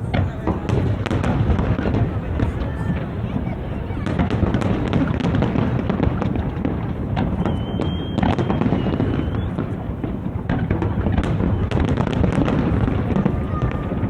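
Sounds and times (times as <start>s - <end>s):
fireworks bangs and crackles: 0.0s - 14.0s
high firework whistles: 6.6s - 10.2s, 10.8s - 14.0s.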